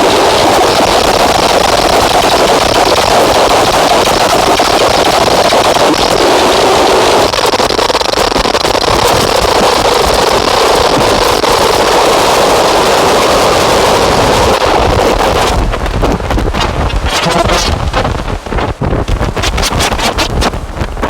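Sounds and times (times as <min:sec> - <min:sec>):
distorted electronic noise: 0:00.0 - 0:21.0.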